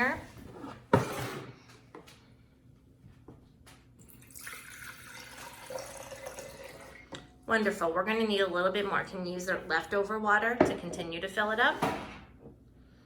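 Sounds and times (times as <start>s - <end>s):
water pouring into glass container: 4.1s - 7.3s.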